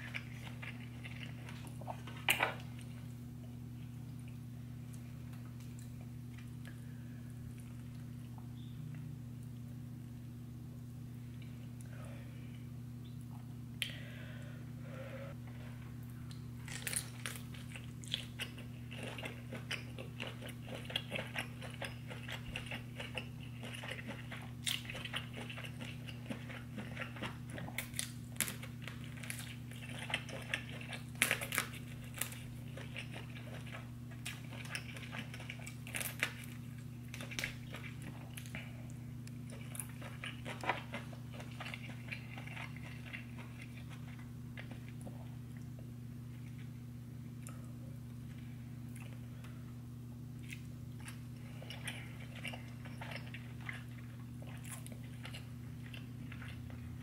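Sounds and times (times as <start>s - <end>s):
person chewing and mouth smacking: 0.0s - 3.0s, 16.0s - 46.8s, 47.4s - 49.5s, 50.3s - 57.0s
steady low hum: 0.0s - 57.0s.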